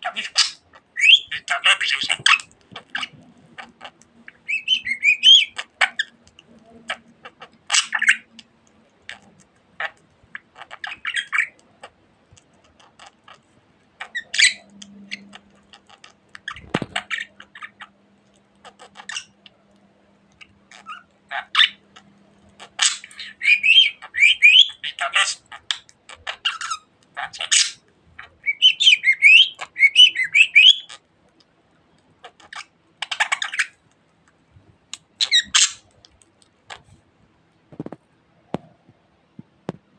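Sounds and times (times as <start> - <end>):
budgerigar chirping: 0.0 - 6.2, 6.9 - 8.4, 9.8 - 11.6, 14.0 - 17.9, 22.6 - 31.0, 35.2 - 35.8.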